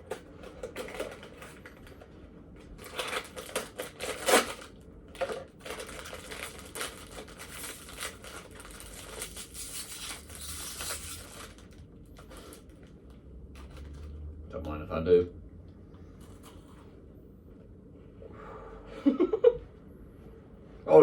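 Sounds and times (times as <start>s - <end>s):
plastic packaging crinkling: 0.0s - 14.2s
plastic packaging tearing: 2.7s - 14.2s.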